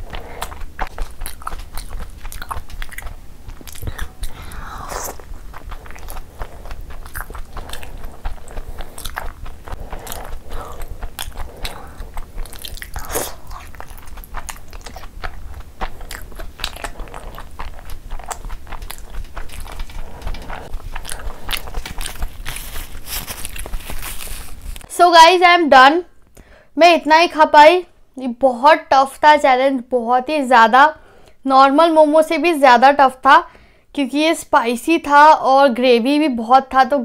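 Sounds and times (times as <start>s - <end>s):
lip smacks: 0.0s - 24.9s
person chewing: 0.0s - 24.9s.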